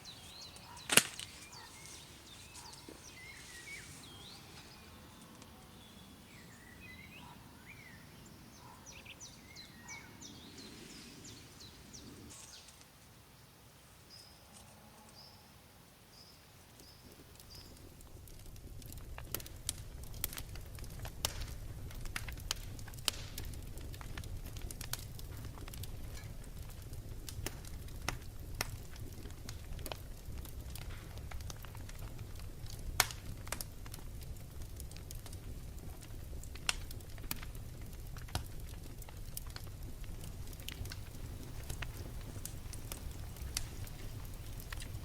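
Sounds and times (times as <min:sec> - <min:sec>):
wood fire crackling and popping: 0:00.0 - 0:06.5, 0:16.7 - 0:45.0.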